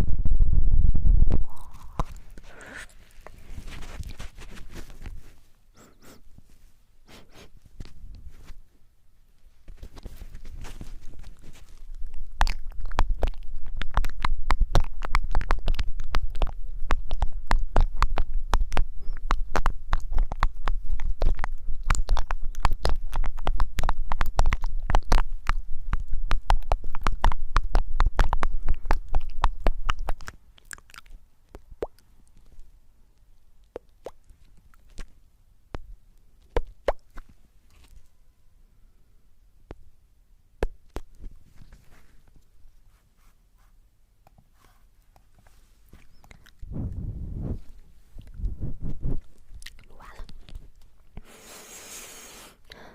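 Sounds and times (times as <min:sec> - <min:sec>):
rubbing on microphone: 0:00.0 - 0:08.7, 0:09.6 - 0:30.3, 0:41.1 - 0:43.8, 0:44.4 - 0:52.5
crackling and scratching clicks: 0:01.2 - 0:05.4, 0:09.4 - 0:31.7, 0:45.1 - 0:51.2.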